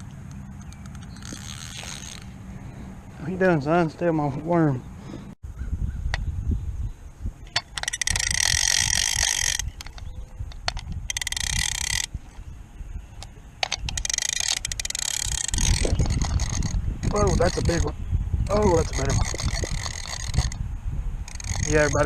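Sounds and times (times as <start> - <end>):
fishing reel whirring: 0.0 - 2.4, 7.5 - 12.2, 13.6 - 20.6, 21.2 - 22.0
reel clicks: 0.0 - 2.4, 7.4 - 12.4, 13.2 - 20.6, 21.2 - 22.0.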